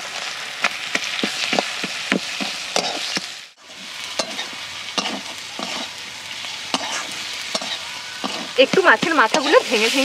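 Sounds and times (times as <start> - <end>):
food sizzling in hot oil: 0.0 - 10.0
metal spatula scraping pan: 2.3 - 5.9, 6.7 - 10.0.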